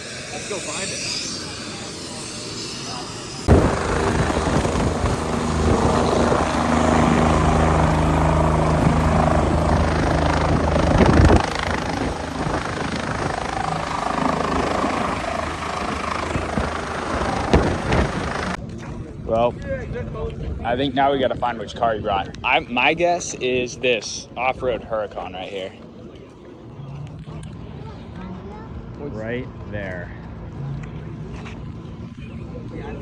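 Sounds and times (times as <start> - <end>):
helicopter engine and rotor: 0.0 - 18.6.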